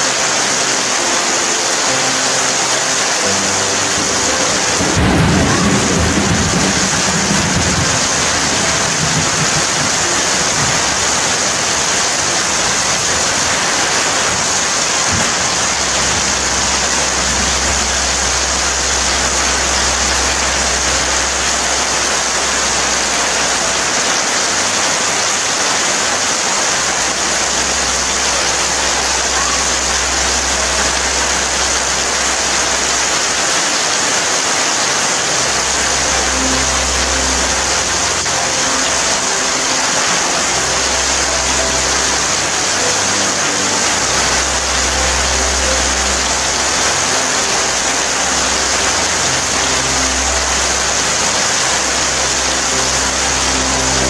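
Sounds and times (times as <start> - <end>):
steady rain hiss: 0.0 - 54.0
low rumble: 3.9 - 24.2.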